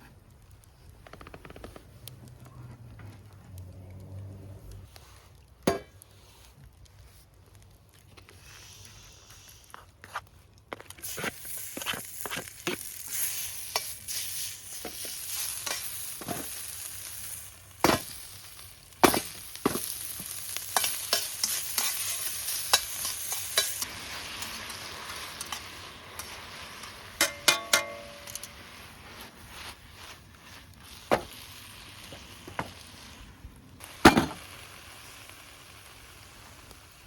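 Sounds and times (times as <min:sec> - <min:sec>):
food sizzling in a hot pan: 0:11.0 - 0:37.0
stirring clicks and scrapes: 0:19.1 - 0:30.8.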